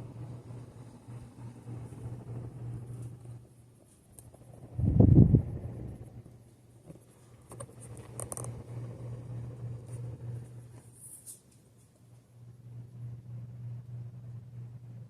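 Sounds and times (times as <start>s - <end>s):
ceiling fan motor hum: 0.0s - 15.0s
faint clicks and rustles: 5.9s - 9.2s.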